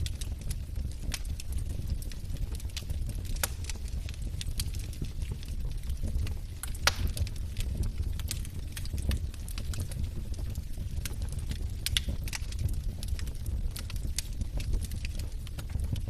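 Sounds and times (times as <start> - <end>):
logs crackling and popping: 0.0 - 16.0
low rumble of flames: 0.0 - 16.0.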